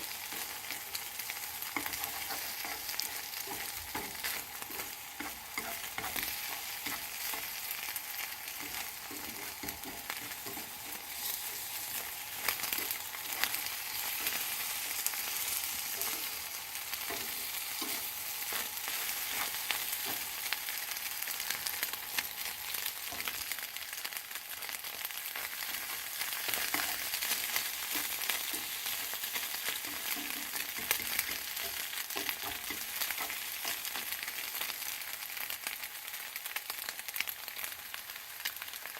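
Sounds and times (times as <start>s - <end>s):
food sizzling in a frying pan: 0.0s - 38.9s
utensil scraping a pan: 1.6s - 7.7s, 8.5s - 16.4s, 26.3s - 34.0s.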